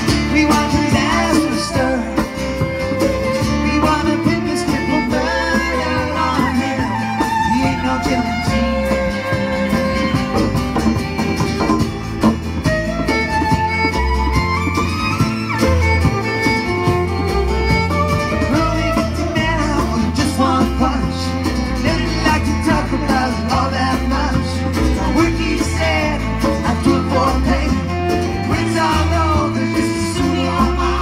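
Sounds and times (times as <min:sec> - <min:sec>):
bass: 0:00.0 - 0:31.0
guitar: 0:00.0 - 0:31.0
violin melody: 0:00.0 - 0:31.0.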